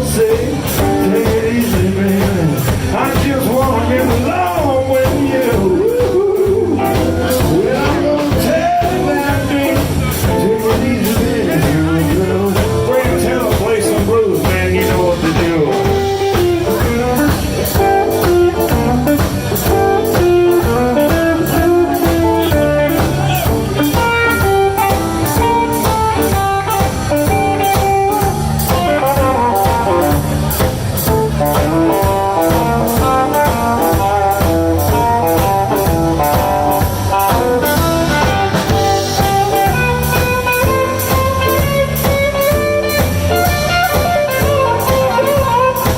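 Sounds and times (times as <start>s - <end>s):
blues band playing: 0.0s - 45.9s.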